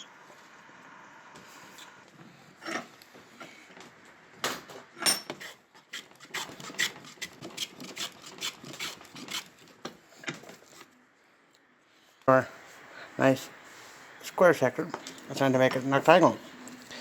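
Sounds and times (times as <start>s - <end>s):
plane shaving wood: 6.2s - 9.5s.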